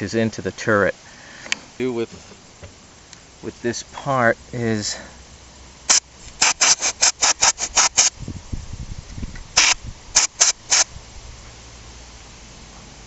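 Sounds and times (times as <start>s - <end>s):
short sharp hissing strokes: 4.8s - 8.2s, 9.4s - 13.0s.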